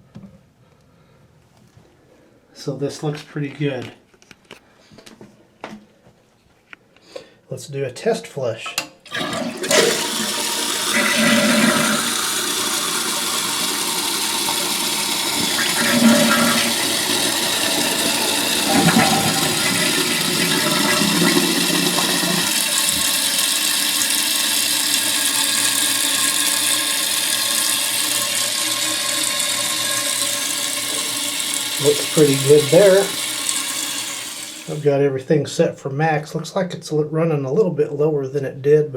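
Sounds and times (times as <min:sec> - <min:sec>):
toilet flushing: 0:09.1 - 0:34.9
toilet tank refilling: 0:09.1 - 0:34.9.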